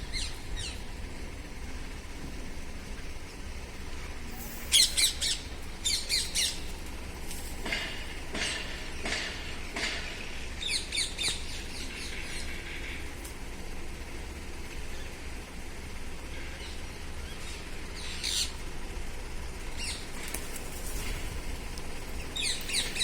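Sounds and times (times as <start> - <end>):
parrot chirping and squawking: 4.3 - 6.6.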